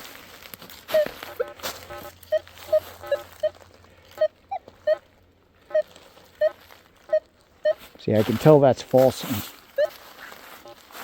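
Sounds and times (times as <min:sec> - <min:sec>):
rustling: 0:00.0 - 0:11.0
metal detector low chirps: 0:00.9 - 0:05.0, 0:05.7 - 0:08.0, 0:09.7 - 0:10.0.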